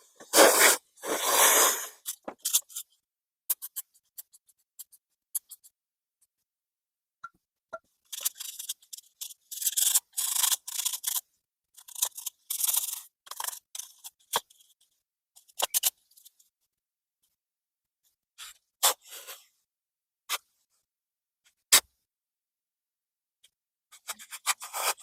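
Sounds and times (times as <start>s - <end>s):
rubbing and scraping metal parts: 0.0s - 2.9s, 8.1s - 14.8s.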